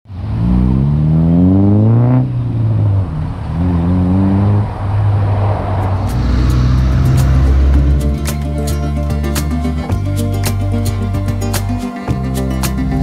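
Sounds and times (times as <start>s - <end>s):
car engine accelerating: 0.1s - 10.0s.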